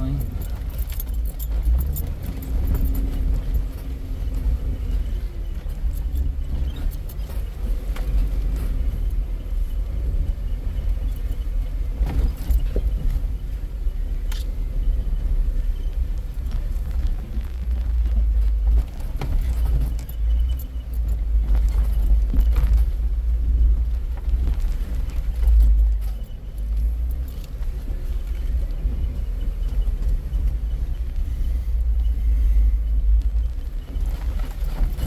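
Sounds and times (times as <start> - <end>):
off-road vehicle rumbling: 0.0 - 35.0.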